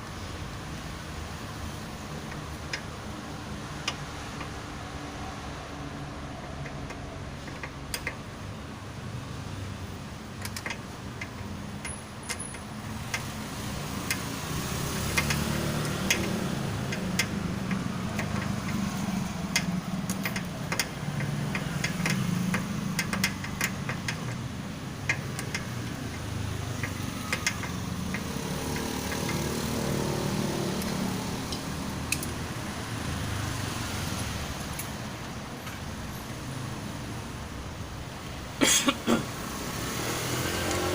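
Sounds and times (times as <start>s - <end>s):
hand tools clicking and tapping: 6.6s - 8.3s, 10.4s - 32.4s.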